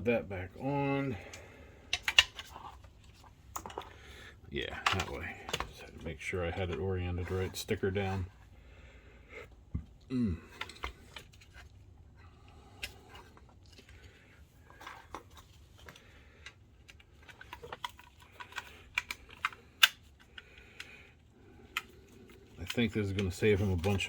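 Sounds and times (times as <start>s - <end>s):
plastic and metal parts clicking: 1.2s - 4.0s, 4.7s - 6.8s, 14.7s - 24.0s.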